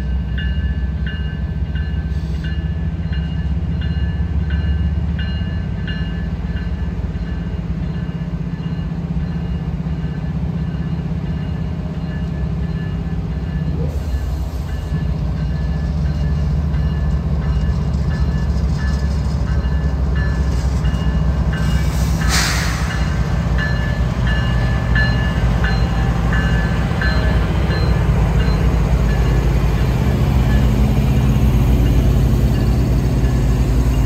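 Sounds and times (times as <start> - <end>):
freight train rumbling past: 0.0 - 34.0
brief hiss: 21.8 - 23.2.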